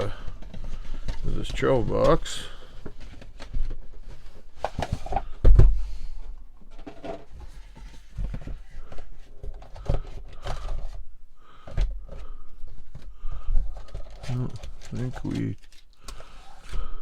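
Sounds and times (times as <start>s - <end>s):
knocks and clicks of packaging: 0.0s - 5.9s, 6.6s - 17.0s.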